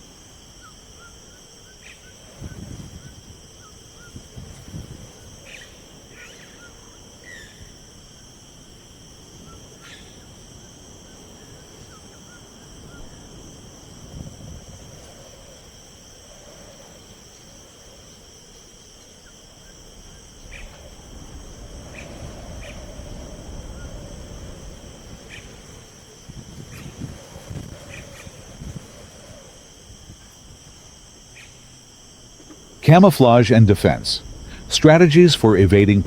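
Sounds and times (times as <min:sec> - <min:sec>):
insects chirring: 0:00.0 - 0:36.0
soft low rumbling: 0:32.4 - 0:36.0.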